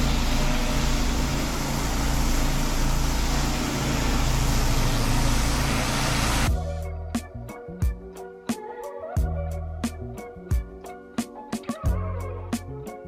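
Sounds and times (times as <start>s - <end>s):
pressure washer engine running: 0.0s - 6.5s
water spray hiss: 0.0s - 6.5s.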